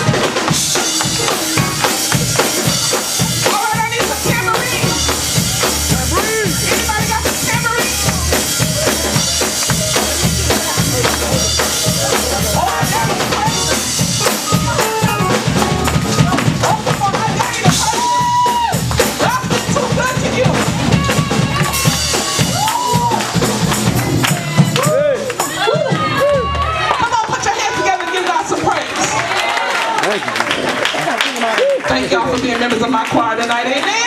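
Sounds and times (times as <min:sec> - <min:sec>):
voices singing and shouting: 0:00.0 - 0:29.2
drum kit driving beat: 0:00.0 - 0:31.2.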